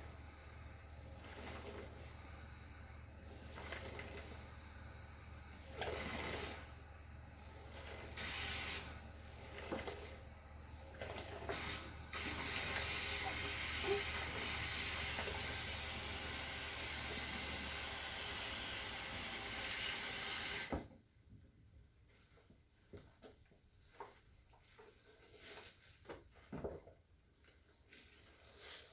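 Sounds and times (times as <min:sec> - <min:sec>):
water running from a tap: 0:08.2 - 0:08.9, 0:11.5 - 0:20.7.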